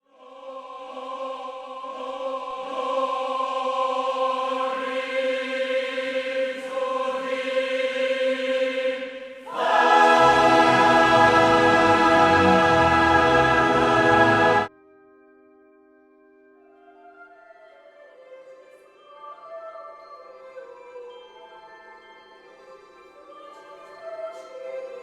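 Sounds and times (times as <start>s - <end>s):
choir singing: 0.1s - 14.7s.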